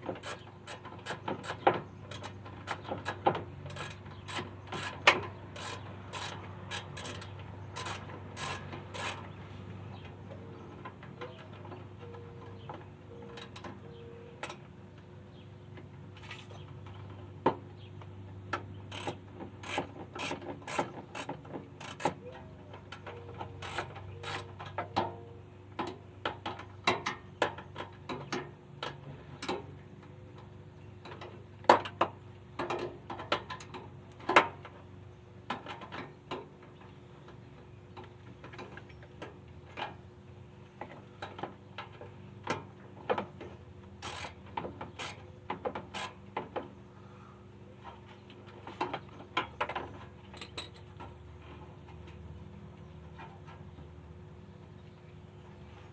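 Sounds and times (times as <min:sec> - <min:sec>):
steady low hum: 0:36.6 - 0:55.9.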